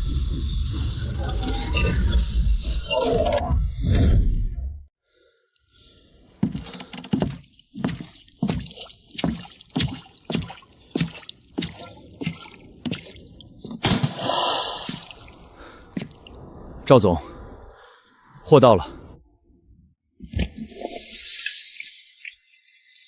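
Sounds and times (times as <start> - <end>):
water dripping: 7.1 - 13.8, 14.7 - 16.6
hissing splash: 8.0 - 16.4.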